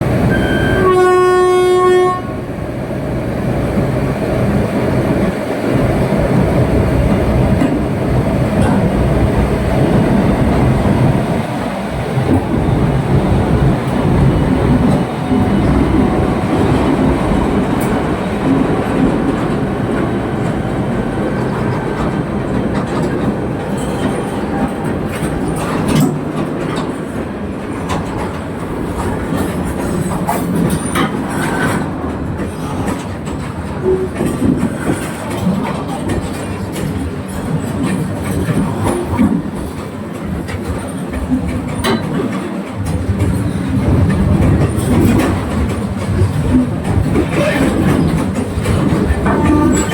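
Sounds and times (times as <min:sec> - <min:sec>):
train rumbling: 0:00.0 - 0:49.9
train horn blast: 0:00.3 - 0:02.5
wheels clicking over rail joints: 0:03.7 - 0:49.9.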